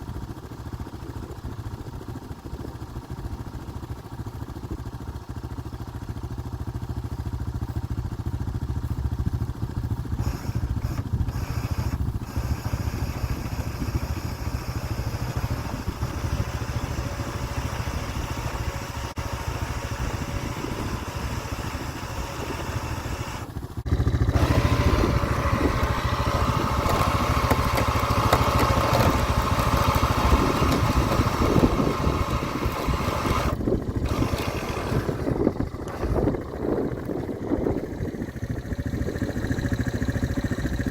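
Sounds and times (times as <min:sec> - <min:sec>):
snowmobile engine droning: 0:10.0 - 0:40.9.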